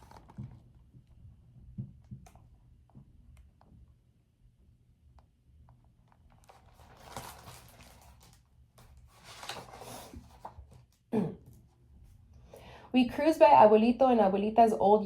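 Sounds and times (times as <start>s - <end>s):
paper page turning: 6.3s - 11.0s.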